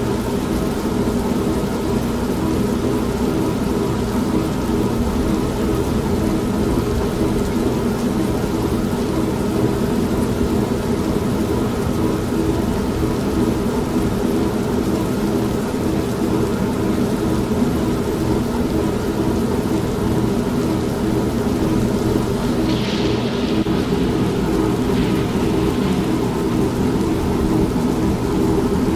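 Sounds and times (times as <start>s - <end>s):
steady rain: 0.0s - 28.9s
washing machine running: 0.0s - 28.9s.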